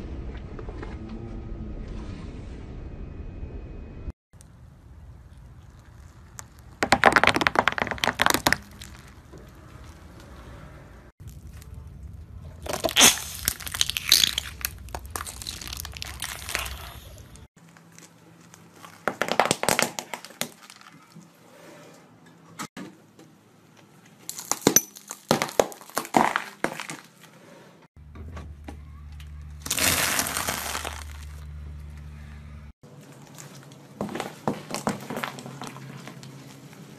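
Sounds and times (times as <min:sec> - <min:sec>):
tyre crushing crunchy objects: 0:05.6 - 0:10.4, 0:11.2 - 0:21.2, 0:24.3 - 0:27.3, 0:29.6 - 0:31.6, 0:32.9 - 0:36.6.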